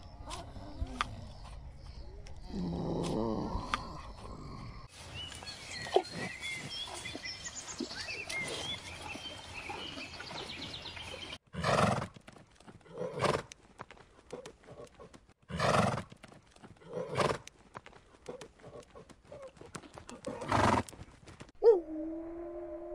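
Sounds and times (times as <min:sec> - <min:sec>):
small birds chirping: 0:00.0 - 0:11.4
steady outdoor background: 0:00.0 - 0:22.9.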